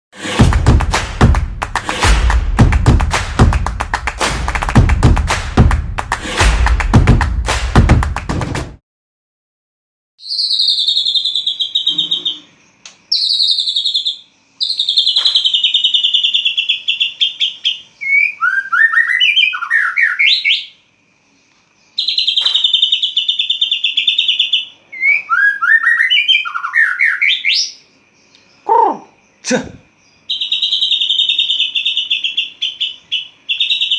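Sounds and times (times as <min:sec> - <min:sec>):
songbird trilling and whistling: 0:10.2 - 0:20.8, 0:21.9 - 0:29.4, 0:30.0 - 0:33.9.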